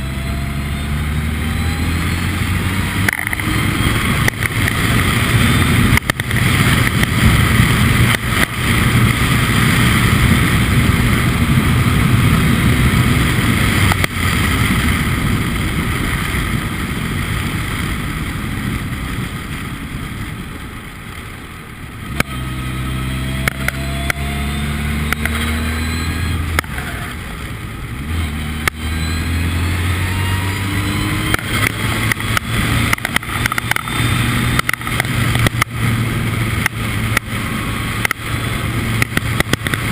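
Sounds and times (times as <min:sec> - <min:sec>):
race car engine revving: 0:00.0 - 0:15.5, 0:22.0 - 0:39.9.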